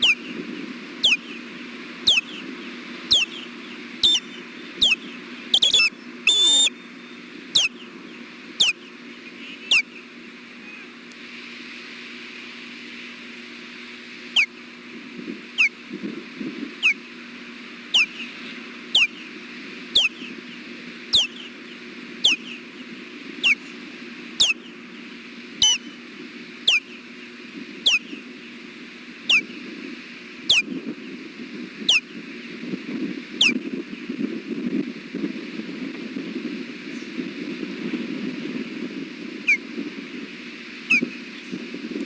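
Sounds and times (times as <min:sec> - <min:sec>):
wind noise on microphone: 0:00.0 - 0:42.0
osprey alert whistles: 0:04.0 - 0:04.2, 0:05.6 - 0:06.7.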